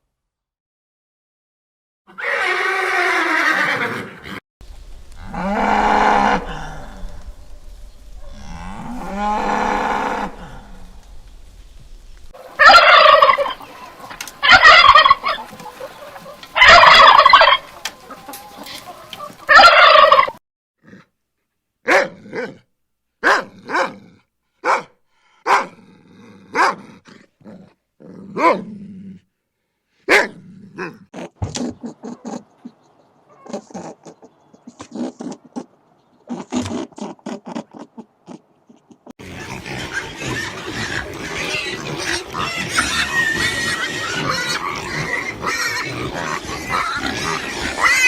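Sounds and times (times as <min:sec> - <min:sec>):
cattle mooing: 0:08.3 - 0:10.6, 0:39.2 - 0:48.0
turkey gobbling: 0:12.4 - 0:20.4, 0:39.3 - 0:48.0.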